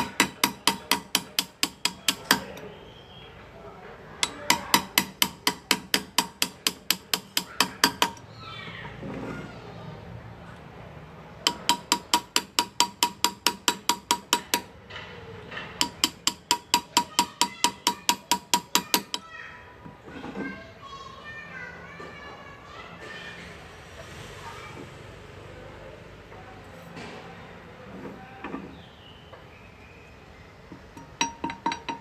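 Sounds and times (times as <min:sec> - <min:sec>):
hammer tapping chisel into metal: 0:00.0 - 0:02.6, 0:04.2 - 0:08.3, 0:11.4 - 0:14.7, 0:15.5 - 0:19.2, 0:30.7 - 0:32.0.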